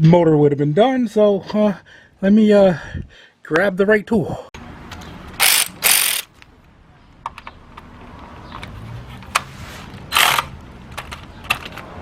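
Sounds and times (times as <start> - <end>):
short rasping burst: 5.4 - 6.3.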